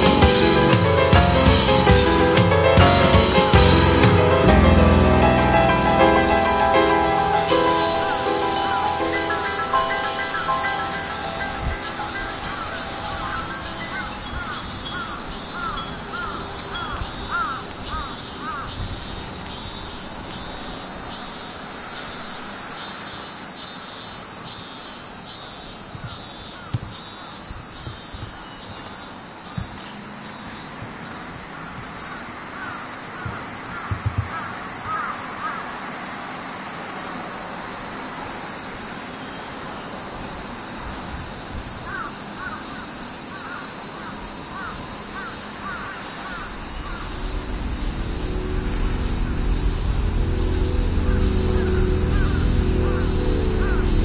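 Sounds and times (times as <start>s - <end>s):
high-pitched drone: 0.0s - 17.8s, 46.4s - 54.0s
bird calling: 6.0s - 19.8s, 25.9s - 35.6s, 41.9s - 54.0s
soft knocks: 33.2s - 34.5s.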